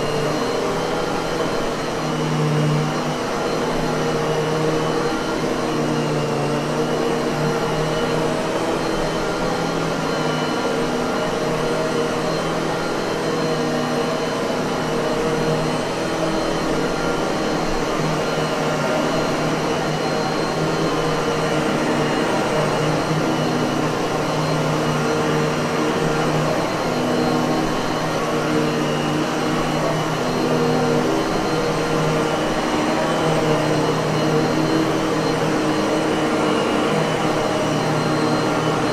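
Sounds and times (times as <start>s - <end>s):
vacuum cleaner motor running: 0.0s - 38.9s.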